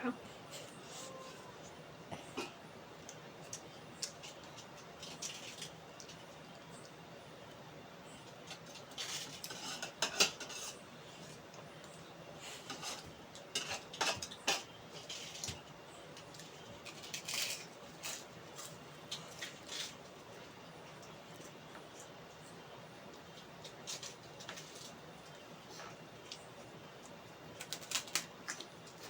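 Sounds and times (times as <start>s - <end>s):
utensils clinking on a dish: 12.7s - 15.6s.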